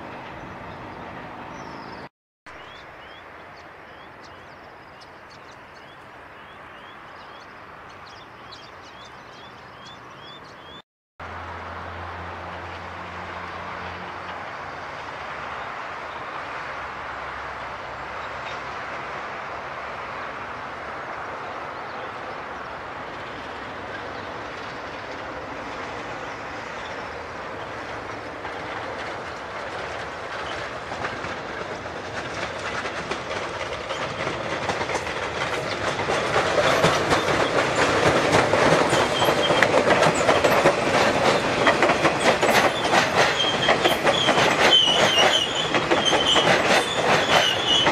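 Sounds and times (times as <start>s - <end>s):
train passing close: 0.0s - 47.9s
wheels clacking over rail joints: 22.8s - 47.9s.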